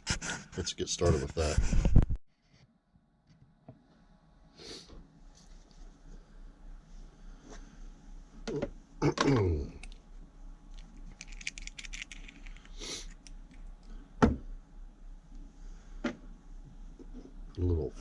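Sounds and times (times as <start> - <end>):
rattle of light clicks: 10.7 - 13.9.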